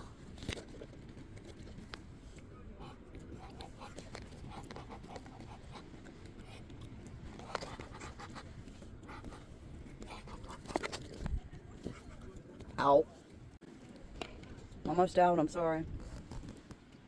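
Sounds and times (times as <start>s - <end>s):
duck bills snapping and pecking: 3.2s - 12.8s.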